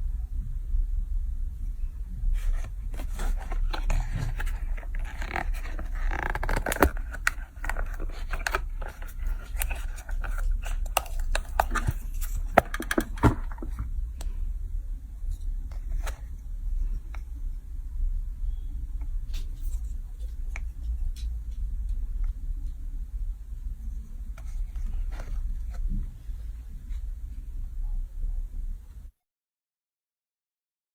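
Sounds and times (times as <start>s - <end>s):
steady low hum: 0.0s - 29.1s
small objects scraping: 2.4s - 13.8s.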